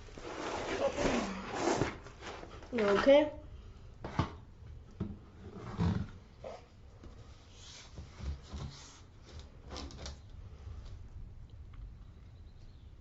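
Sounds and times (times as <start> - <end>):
things being handled: 0.0 - 3.3.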